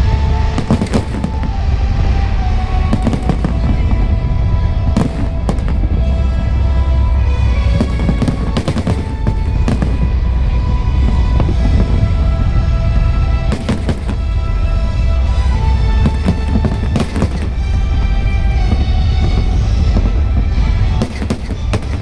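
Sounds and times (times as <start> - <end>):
fireworks bangs: 0.0 - 22.0
low rumble: 0.0 - 22.0
show music: 0.0 - 22.0.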